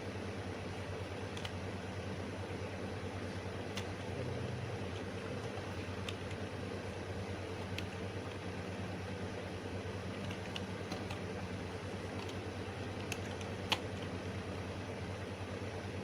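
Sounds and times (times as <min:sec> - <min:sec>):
computer fan hum: 0:00.0 - 0:16.0
scattered clicks: 0:01.0 - 0:01.6, 0:03.6 - 0:04.2, 0:04.8 - 0:06.6, 0:07.4 - 0:08.4, 0:10.1 - 0:14.2.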